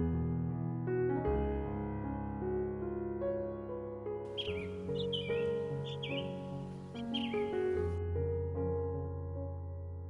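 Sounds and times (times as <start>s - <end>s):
soft piano music: 0.0s - 10.0s
birds chirping: 4.3s - 8.0s.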